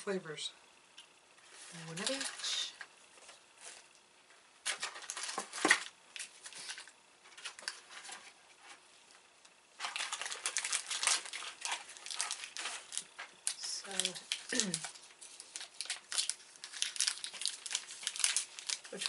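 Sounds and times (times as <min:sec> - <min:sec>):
plastic wrappers crinkling: 0:01.5 - 0:02.8, 0:04.6 - 0:08.4, 0:09.8 - 0:19.0.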